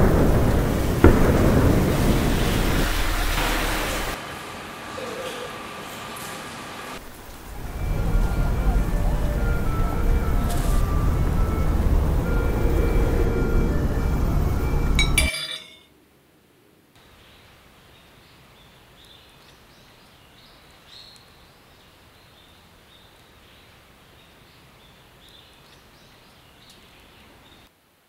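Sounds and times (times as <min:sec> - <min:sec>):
soft outdoor hiss: 0:00.0 - 0:28.0
loud sound with clink: 0:14.8 - 0:15.9.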